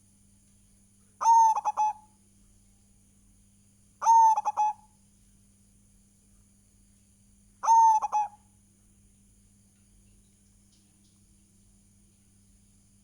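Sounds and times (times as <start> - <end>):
dove cooing: 1.2 - 2.0, 4.0 - 4.8, 7.6 - 8.4.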